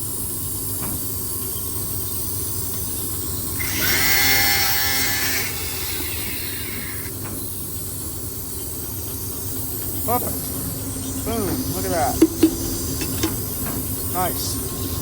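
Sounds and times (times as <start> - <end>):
power tool spinning up: 3.6 - 7.1.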